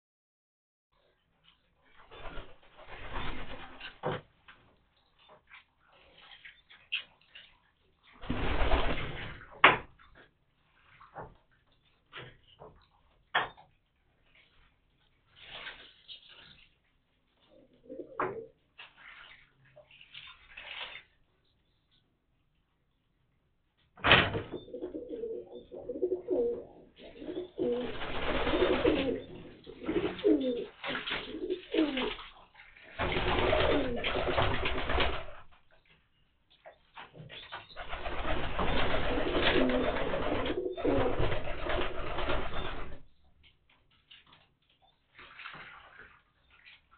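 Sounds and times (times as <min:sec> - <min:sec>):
pigeons splashing in water: 0:02.0 - 0:04.2, 0:08.2 - 0:09.6, 0:27.1 - 0:35.6, 0:37.7 - 0:43.0, 0:45.1 - 0:46.9
wings flapping: 0:02.0 - 0:04.2, 0:08.2 - 0:09.6, 0:27.0 - 0:35.6, 0:37.5 - 0:43.1.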